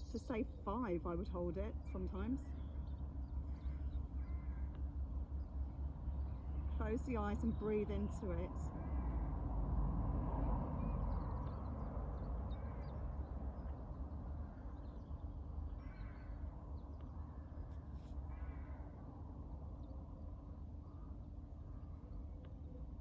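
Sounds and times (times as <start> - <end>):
small birds chirping: 0.0 - 9.5, 10.8 - 23.0
steady low rumble: 0.0 - 23.0
crow cawing: 3.5 - 4.8, 15.7 - 16.5, 18.2 - 19.0.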